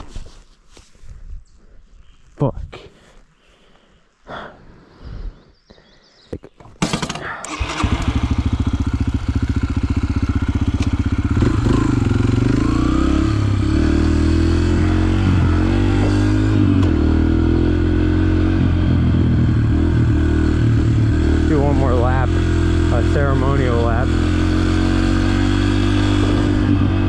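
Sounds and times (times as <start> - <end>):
dirt bike engine running: 6.8 - 27.0.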